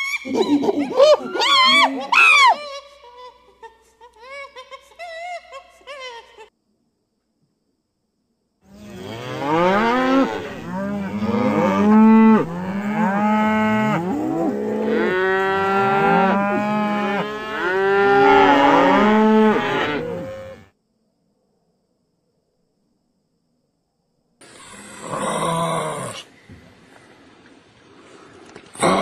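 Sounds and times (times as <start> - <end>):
cattle mooing: 8.8 - 20.7.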